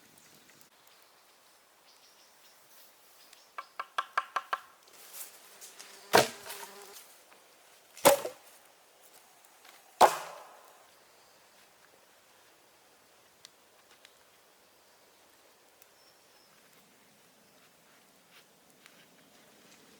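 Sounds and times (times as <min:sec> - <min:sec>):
hand tool tapping wood: 0:03.6 - 0:04.7.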